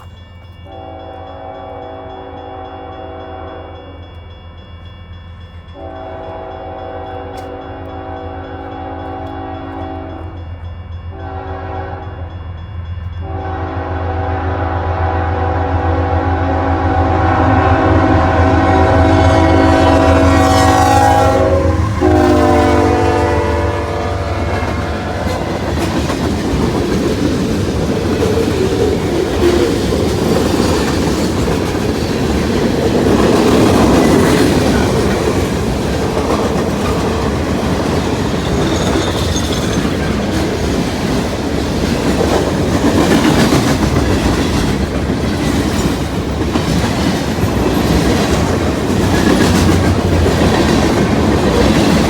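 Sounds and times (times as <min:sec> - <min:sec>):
train horn chord: 0:00.6 - 0:04.0, 0:05.8 - 0:10.5, 0:11.1 - 0:12.4, 0:13.2 - 0:25.8.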